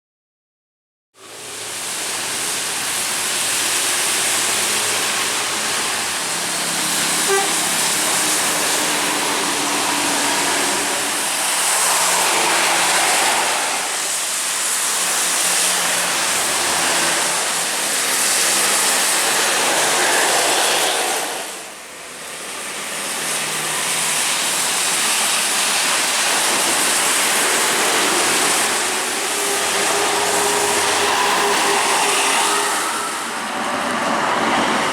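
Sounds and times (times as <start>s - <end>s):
bus engine drone: 1.2s - 34.9s
tyre spray hiss on wet road: 1.2s - 34.9s.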